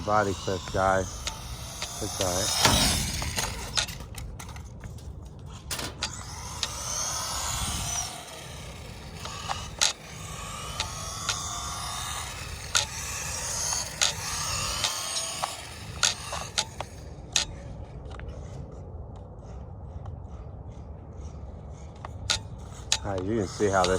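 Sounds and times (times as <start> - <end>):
toy truck bumping and landing: 0.0 - 17.6
electric motor whining: 0.0 - 18.5, 21.8 - 23.9.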